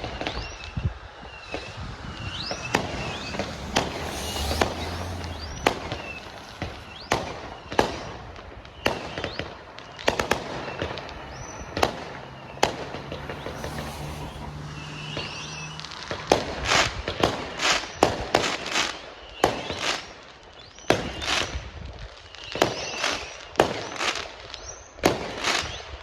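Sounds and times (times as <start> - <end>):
fireworks bangs: 0.0 - 20.2
rising firework whistles: 0.0 - 26.0.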